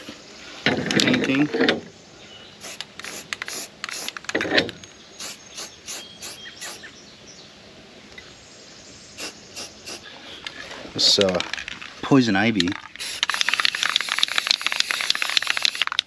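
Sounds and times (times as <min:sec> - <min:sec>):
spray can mixing ball clicking: 0:02.6 - 0:04.4, 0:05.2 - 0:06.8, 0:12.6 - 0:16.0.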